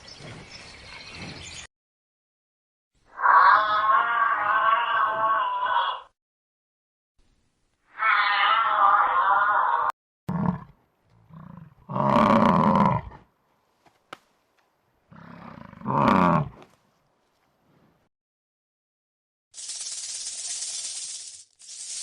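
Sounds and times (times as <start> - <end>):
higher-pitched animal call: 3.1 - 6.1, 7.9 - 9.9
big cat roaring: 8.0 - 13.2, 15.1 - 16.6.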